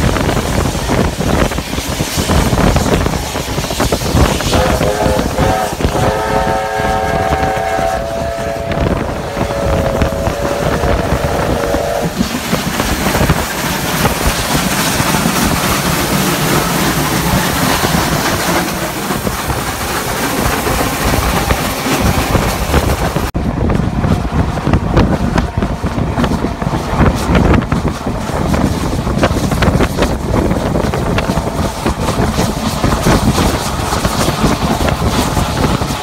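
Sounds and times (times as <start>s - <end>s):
trains rumbling and clattering: 0.0s - 36.0s
wind on microphone: 0.0s - 36.0s
train whistle blasts: 4.5s - 12.2s.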